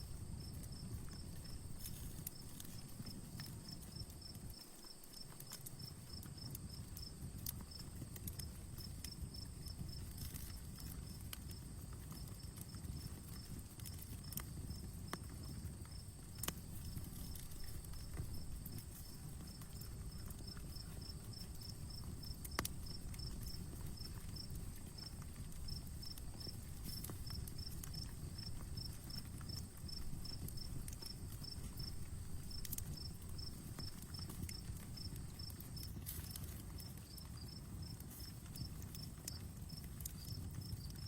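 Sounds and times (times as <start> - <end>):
campfire crackling: 0.0 - 41.0
cricket chirping: 0.0 - 41.0.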